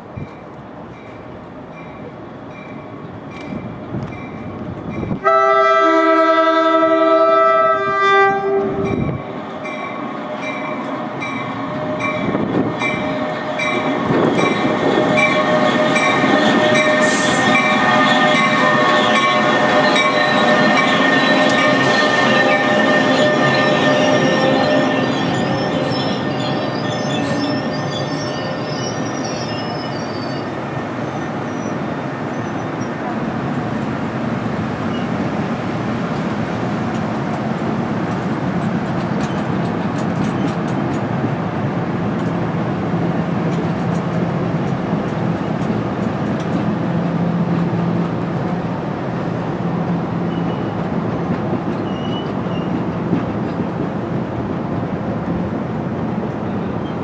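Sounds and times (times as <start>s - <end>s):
train rumbling past: 0.0s - 57.0s
high wheel squeal: 15.2s - 32.9s, 51.7s - 52.8s.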